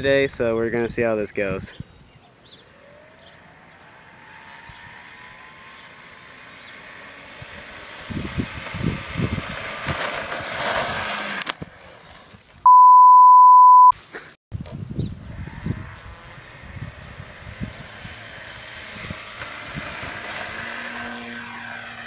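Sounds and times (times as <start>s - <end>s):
electric motor whining: 2.5s - 11.6s, 15.2s - 22.0s
wind on microphone: 7.4s - 11.3s, 14.5s - 20.8s
electronic beep: 12.7s - 13.9s.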